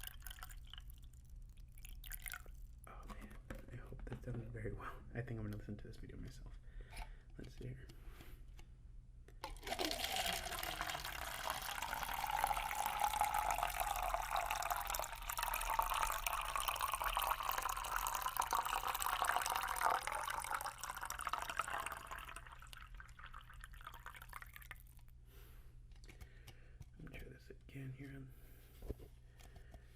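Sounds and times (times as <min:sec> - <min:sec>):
water pouring into a cup: 0:00.0 - 0:02.9, 0:09.4 - 0:25.1.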